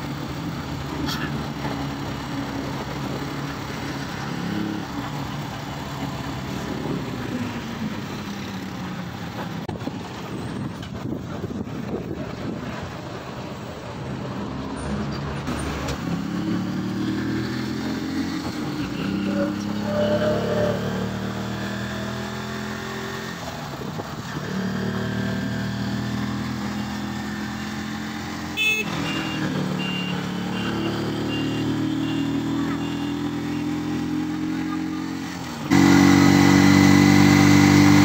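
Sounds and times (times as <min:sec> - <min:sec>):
car engine accelerating: 0:14.4 - 0:38.0.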